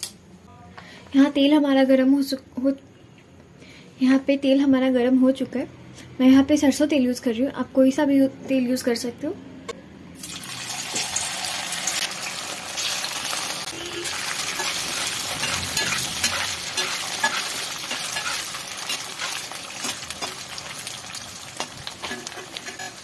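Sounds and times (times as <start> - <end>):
oil sizzling: 10.2 - 23.0
metal spatula scraping pan: 13.7 - 23.0.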